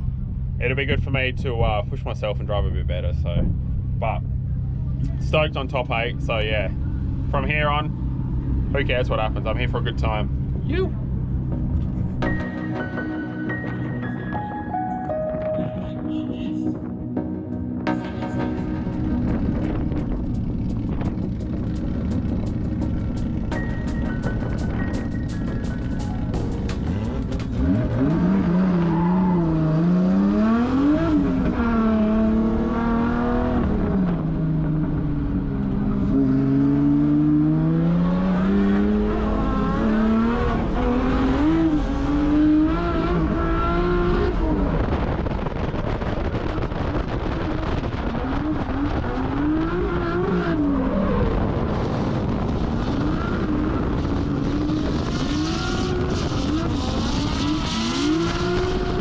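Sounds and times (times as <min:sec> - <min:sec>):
tyre noise: 0:20.0 - 0:30.4
car engine revving hard: 0:24.4 - 0:59.0.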